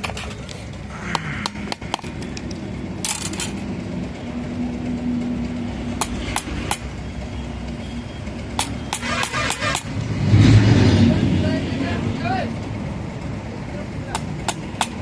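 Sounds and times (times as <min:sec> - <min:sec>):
sharp knocks and taps: 0:14.1 - 0:15.0.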